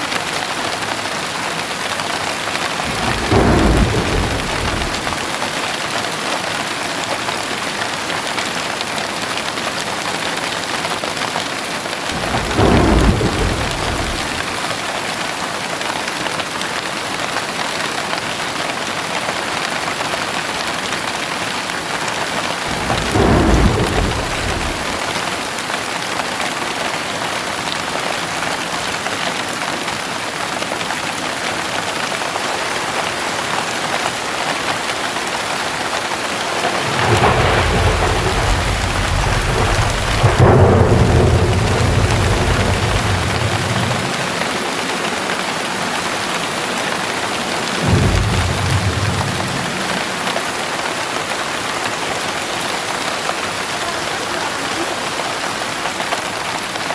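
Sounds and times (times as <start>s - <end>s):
heavy rain falling: 0.0s - 56.9s
thunder rumbling: 2.7s - 5.7s, 12.1s - 14.8s, 22.4s - 25.7s, 35.8s - 53.8s.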